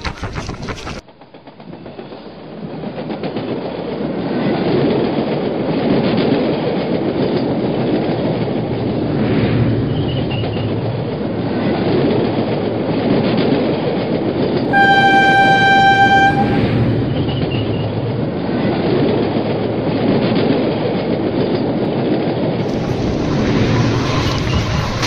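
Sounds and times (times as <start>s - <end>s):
train horn: 14.7s - 17.4s
train wheels rumbling: 14.7s - 17.5s.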